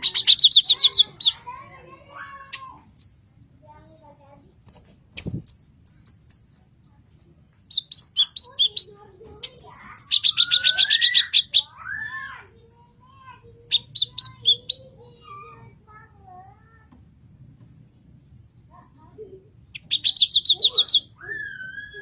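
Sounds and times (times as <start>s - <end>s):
bird singing high chirps: 0.0s - 1.6s, 5.2s - 6.6s, 7.5s - 13.0s, 13.6s - 22.0s.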